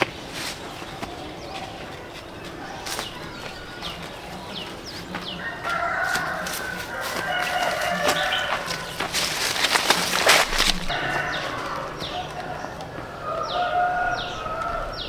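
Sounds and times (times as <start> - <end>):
rooster crowing: 5.2 - 15.0.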